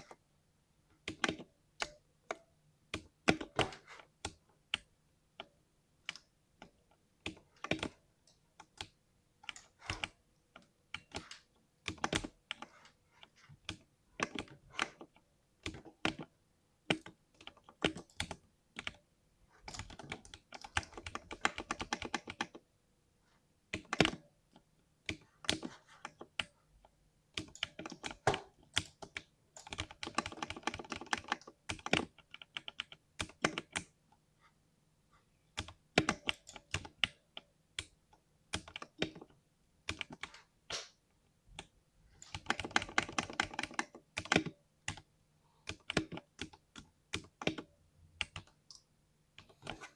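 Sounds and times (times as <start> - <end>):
mechanical keyboard typing: 1.1 - 2.0, 8.6 - 12.8, 16.9 - 19.0, 19.7 - 22.6, 23.7 - 24.2, 27.4 - 34.0, 35.6 - 40.8, 41.6 - 45.1, 45.7 - 48.8.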